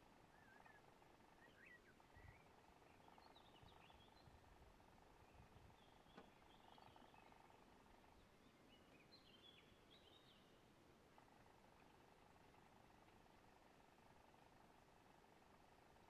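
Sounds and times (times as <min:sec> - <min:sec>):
distant bird chirps: 0:00.1 - 0:10.6.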